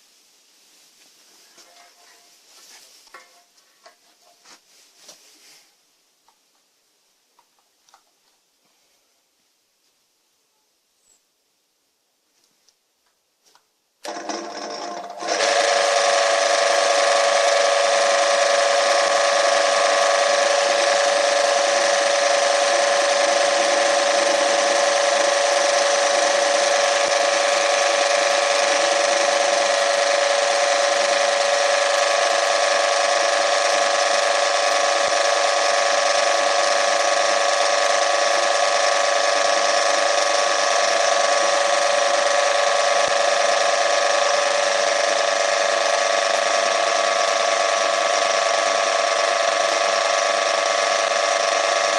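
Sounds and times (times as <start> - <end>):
electric motor whirring: 14.0 - 51.9.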